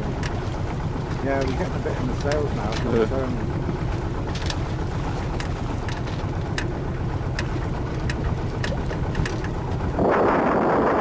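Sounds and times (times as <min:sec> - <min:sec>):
boat rumble: 0:00.0 - 0:11.0
light sharp ticks: 0:05.3 - 0:09.6
wind on microphone: 0:08.2 - 0:11.0.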